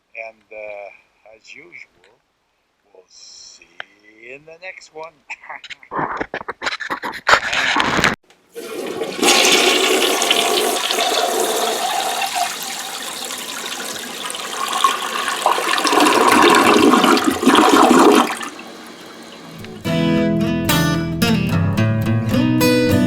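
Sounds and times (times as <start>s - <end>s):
water rushing and swirling: 8.6s - 19.8s
strummed acoustic guitar music: 19.3s - 23.0s.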